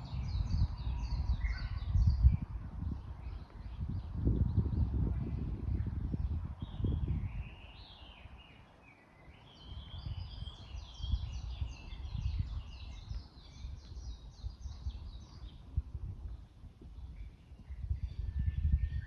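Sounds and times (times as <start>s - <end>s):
small songbird singing: 0.0s - 19.0s.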